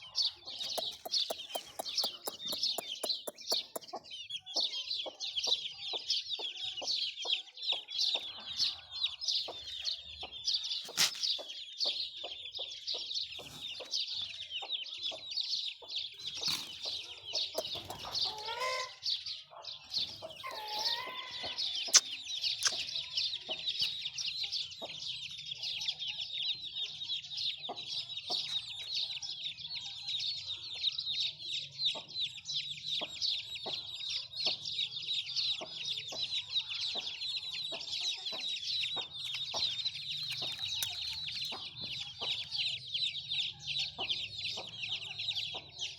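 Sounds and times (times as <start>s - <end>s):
chickens peeping and clucking: 0.0s - 45.9s
sharp clicks: 0.6s - 3.9s.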